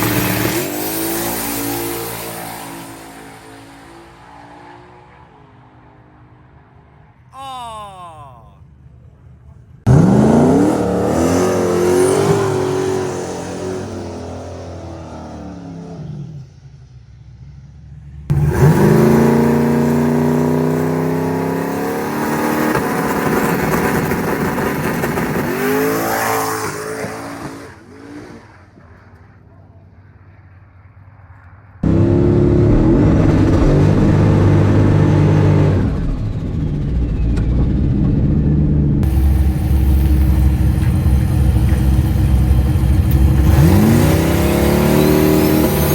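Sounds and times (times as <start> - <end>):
drag car engine running hard: 31.8 - 45.9.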